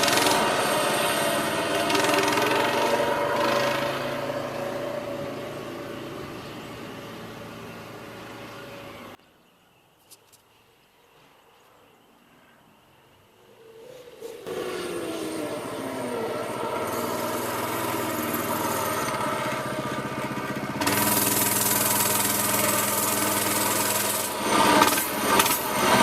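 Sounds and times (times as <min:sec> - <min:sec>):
mini bike engine running: 0:00.0 - 0:09.2, 0:14.4 - 0:26.0.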